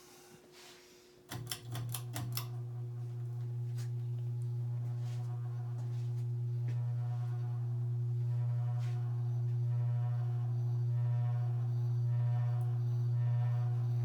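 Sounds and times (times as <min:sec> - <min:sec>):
ceiling fan motor humming: 0:01.2 - 0:14.0
ceiling fan switch clicks: 0:01.3 - 0:02.6.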